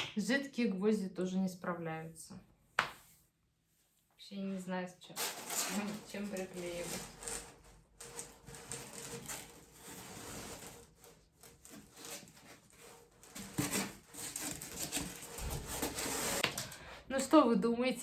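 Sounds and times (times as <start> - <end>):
rubbing and rustling by hand: 5.1 - 16.7.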